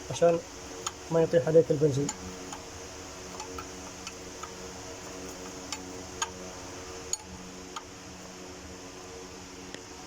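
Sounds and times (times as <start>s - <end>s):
steady background hum: 0.0s - 10.0s
hand tools clicking: 0.8s - 1.1s, 3.3s - 6.4s.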